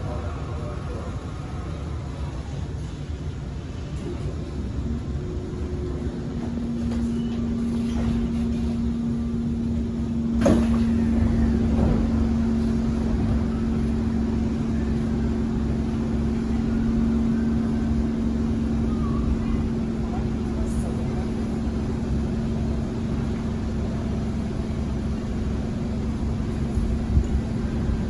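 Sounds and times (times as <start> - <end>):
train cabin low hum: 0.0 - 28.0
train doors opening clunk: 6.2 - 13.8.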